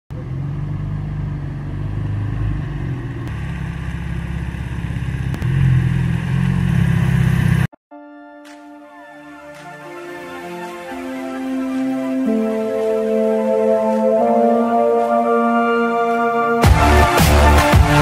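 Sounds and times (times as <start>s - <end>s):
car engine rumble: 0.1s - 7.7s
soft music: 7.9s - 18.0s.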